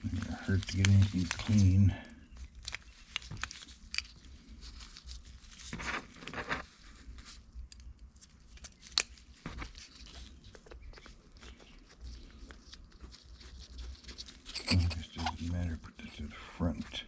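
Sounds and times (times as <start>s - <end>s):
rustling and clicks of parts: 0.0s - 15.5s.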